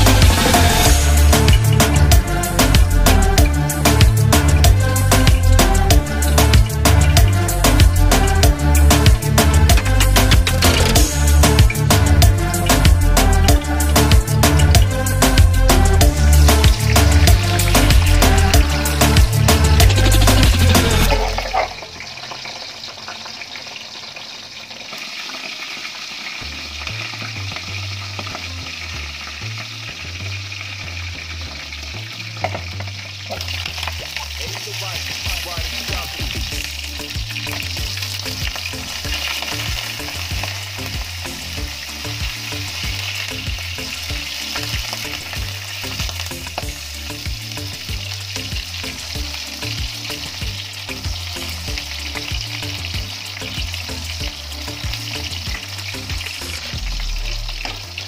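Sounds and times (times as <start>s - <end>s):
food sizzling in oil: 0.0s - 58.0s.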